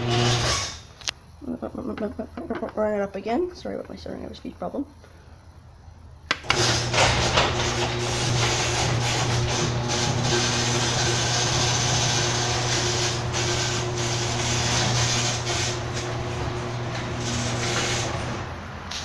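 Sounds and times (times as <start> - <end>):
garage door opener motor humming: 0.0 - 0.8, 6.3 - 19.0.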